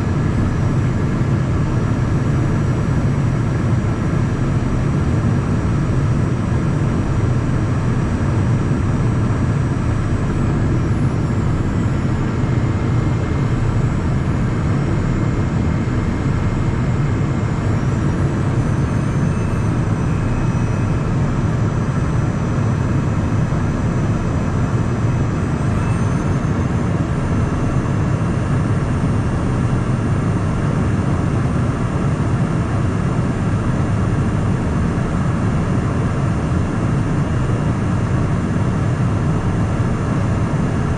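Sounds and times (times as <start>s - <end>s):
high engine whines: 0.0s - 40.9s.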